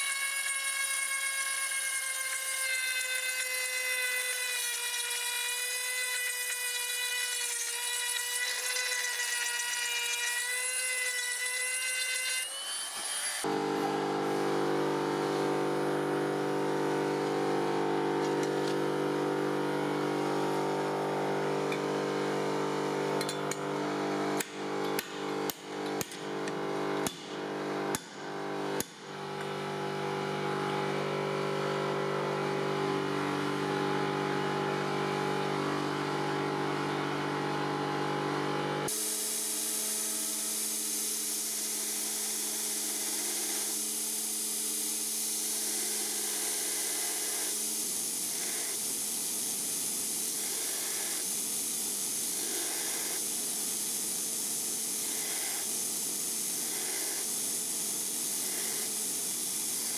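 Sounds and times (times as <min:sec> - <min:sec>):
power tool motor running: 0:00.0 - 0:59.9
steady hiss: 0:38.9 - 0:59.9.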